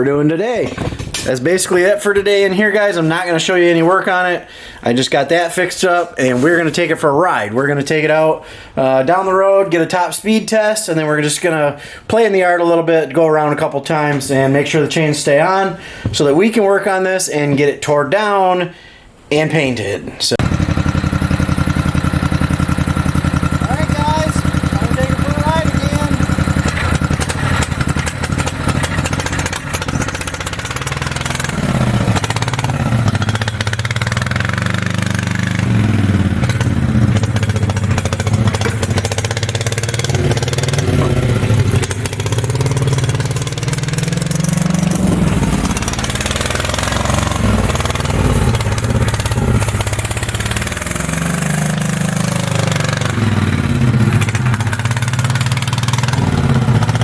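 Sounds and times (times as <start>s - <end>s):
motorbike engine revving: 20.4s - 57.0s.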